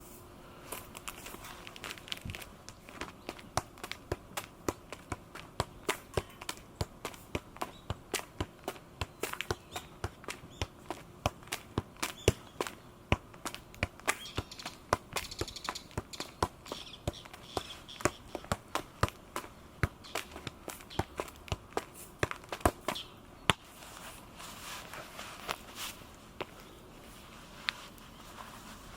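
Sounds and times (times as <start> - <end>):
football taps by foot: 1.8 - 23.7.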